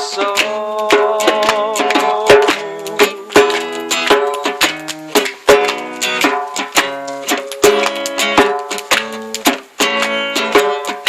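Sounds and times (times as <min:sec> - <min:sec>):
person singing: 0:00.0 - 0:05.6
acoustic guitar strumming: 0:00.0 - 0:11.0
djembe hand drum: 0:00.0 - 0:11.0.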